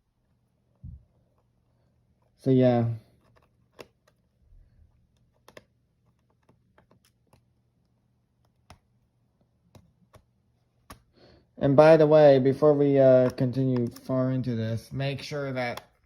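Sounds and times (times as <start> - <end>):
screwdriver clicking on plastic: 3.2 - 4.2.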